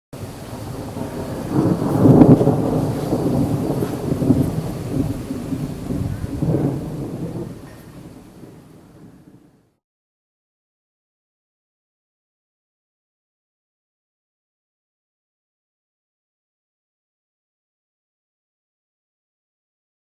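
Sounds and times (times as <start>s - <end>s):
rolling thunder: 0.2s - 9.6s.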